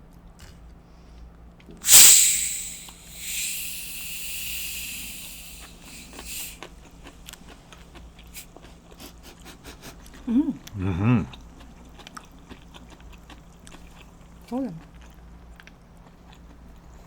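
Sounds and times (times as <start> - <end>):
carbonated bottle hissing: 1.8 - 6.6.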